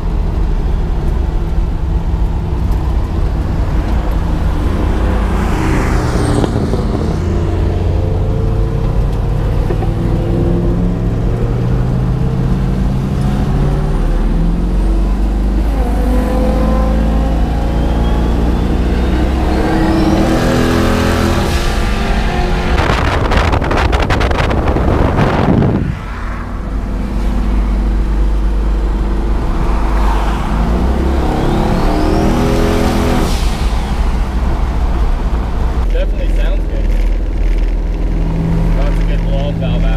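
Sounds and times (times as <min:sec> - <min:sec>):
car engine running under load: 0:00.0 - 0:39.9
high turbo whistle: 0:16.5 - 0:23.4, 0:29.4 - 0:34.1.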